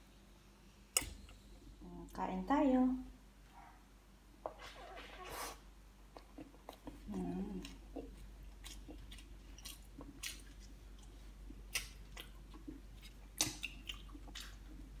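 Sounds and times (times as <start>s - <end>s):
wet squishy chewing: 6.1s - 15.0s.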